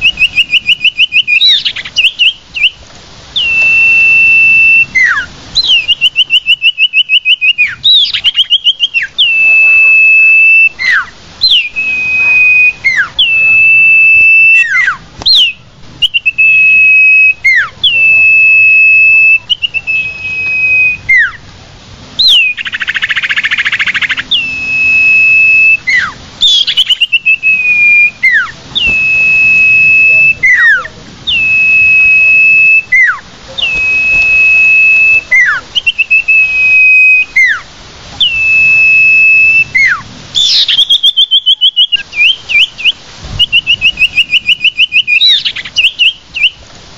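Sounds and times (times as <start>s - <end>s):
bird long whistles: 0.0s - 2.8s, 3.4s - 21.4s, 22.2s - 37.6s, 38.2s - 46.6s
bird rapid trill: 0.0s - 2.8s, 3.4s - 21.4s, 22.2s - 37.6s, 38.2s - 46.6s.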